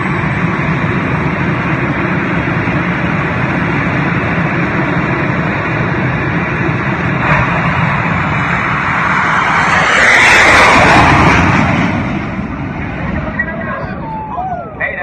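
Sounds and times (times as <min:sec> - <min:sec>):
jet engine roaring: 0:00.0 - 0:15.0.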